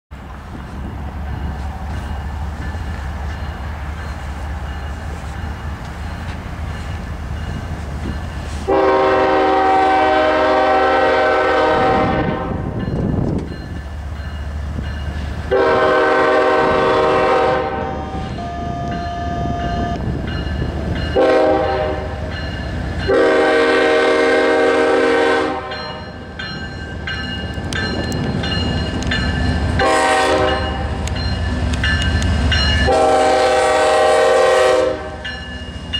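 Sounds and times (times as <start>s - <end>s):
diesel locomotive rumble: 0.1s - 35.9s
locomotive air horn blasts: 8.6s - 12.8s, 15.5s - 19.9s, 21.2s - 22.3s, 23.1s - 26.0s, 29.8s - 31.1s, 32.8s - 35.2s.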